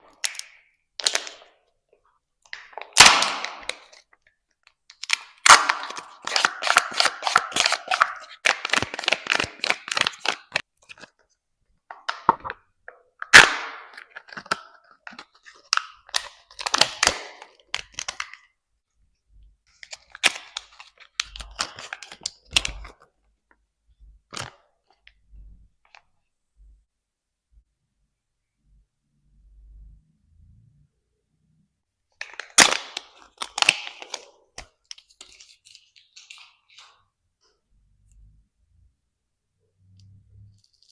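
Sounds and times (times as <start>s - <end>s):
packaging cracking and crinkling: 4.9s - 11.1s, 13.3s - 18.4s, 32.2s - 37.0s.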